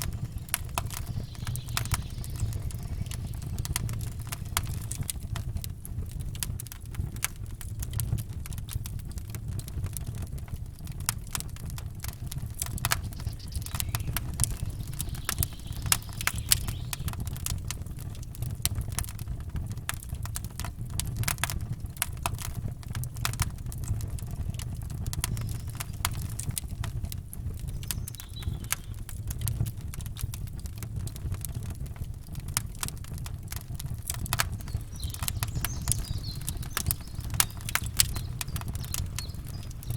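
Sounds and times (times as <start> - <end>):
steady low rumble: 0.0 - 6.5, 12.1 - 18.3, 33.7 - 39.9
campfire crackling: 0.0 - 39.9.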